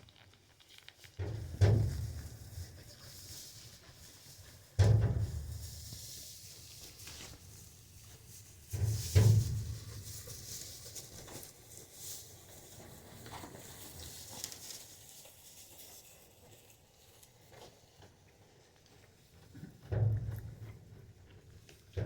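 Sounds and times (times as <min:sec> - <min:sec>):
goats thumping on barn floor: 0:08.7 - 0:11.5, 0:19.7 - 0:21.0.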